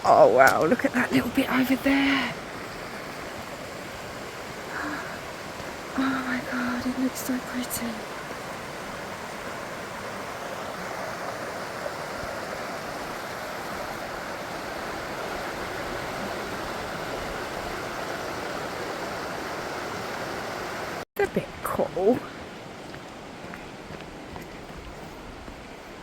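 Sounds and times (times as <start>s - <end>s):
river rushing over waterfalls: 0.6s - 21.0s.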